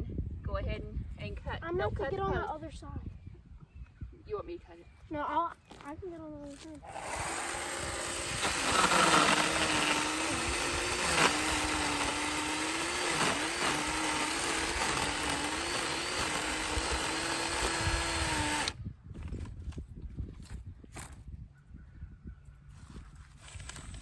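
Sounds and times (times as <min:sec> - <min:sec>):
electric chainsaw cutting wood: 0:06.8 - 0:18.8.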